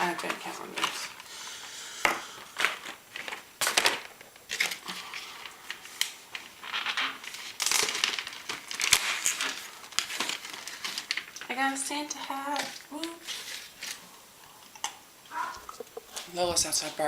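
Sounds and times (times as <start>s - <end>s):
paper and packaging crinkling: 0.0s - 14.2s
cardboard tearing: 2.5s - 11.4s, 13.0s - 14.0s.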